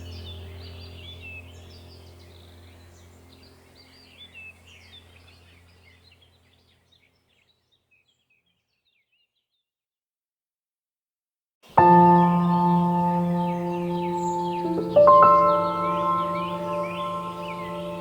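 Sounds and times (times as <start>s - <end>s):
low steady hum: 0.0s - 6.8s, 11.8s - 18.0s
songbirds chirping and singing: 0.0s - 9.6s, 11.8s - 18.0s.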